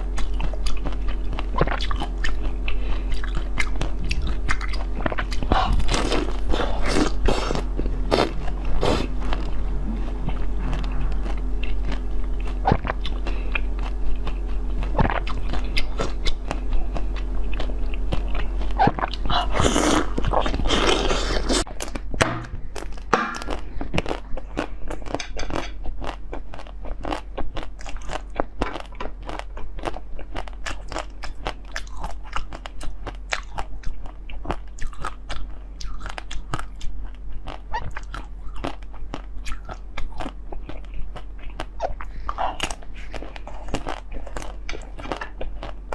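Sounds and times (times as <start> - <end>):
person chewing crunchy food: 0.0 - 45.9.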